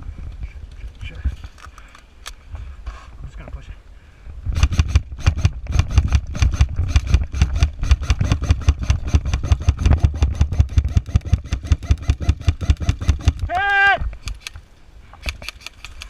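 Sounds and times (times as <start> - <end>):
airsoft rifle rapid shots: 4.6 - 13.5.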